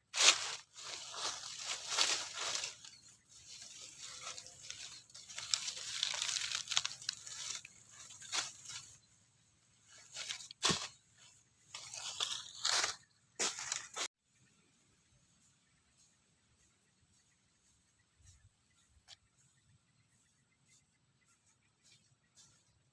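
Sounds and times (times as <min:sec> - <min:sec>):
rustling and crinkling handling: 0:00.1 - 0:09.1, 0:09.8 - 0:14.1.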